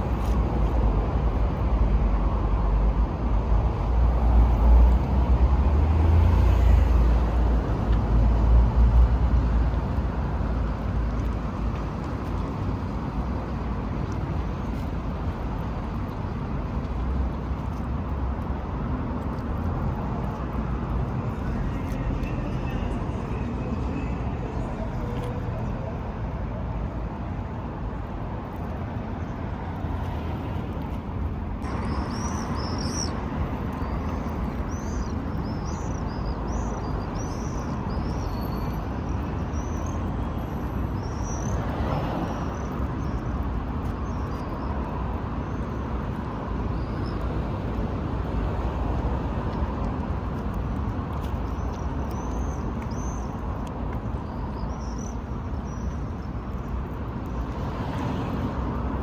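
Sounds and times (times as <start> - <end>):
road traffic rumble: 0.0 - 59.0
small birds chirping: 31.6 - 43.2, 51.2 - 56.4.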